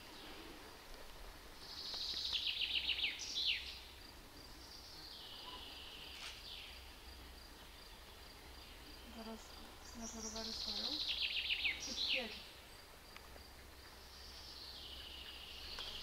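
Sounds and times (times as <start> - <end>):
songbird trilling: 9.0 - 12.5.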